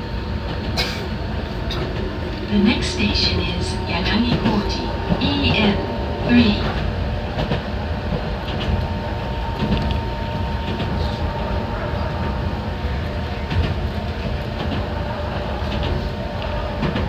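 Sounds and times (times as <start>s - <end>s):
train wheels rumbling on rail: 0.0s - 17.0s
thin steady whine: 2.3s - 12.0s.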